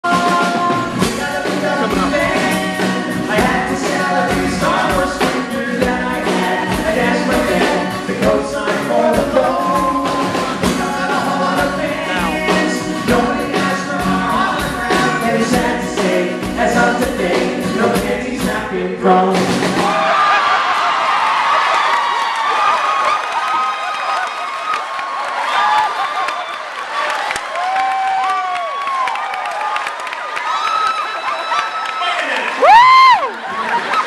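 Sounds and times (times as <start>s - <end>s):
voices singing together: 0.0s - 20.4s.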